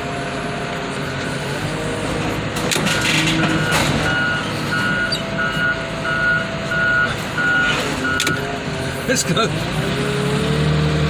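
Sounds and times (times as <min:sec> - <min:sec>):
backup alarm beeping: 0:03.0 - 0:08.4.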